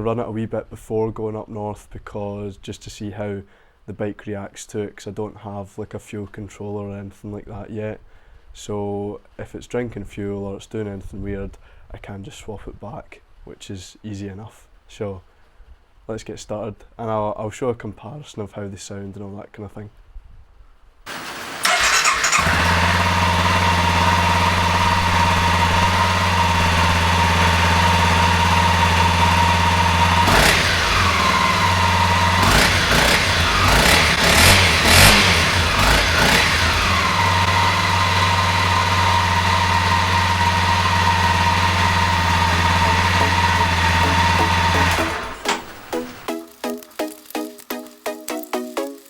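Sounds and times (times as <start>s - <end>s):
motorcycle engine revving: 21.1s - 46.3s
motorcycle engine starting and idling: 21.1s - 46.3s.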